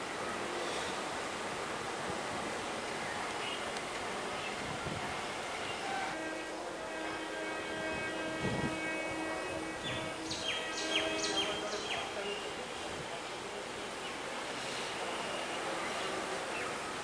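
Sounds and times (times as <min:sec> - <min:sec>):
train running on track: 0:00.0 - 0:17.0.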